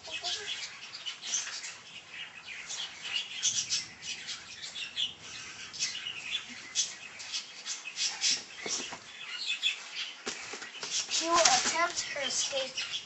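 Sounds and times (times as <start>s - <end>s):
hen chirps: 0.0s - 13.0s
hen scratching and rustling: 5.6s - 12.9s.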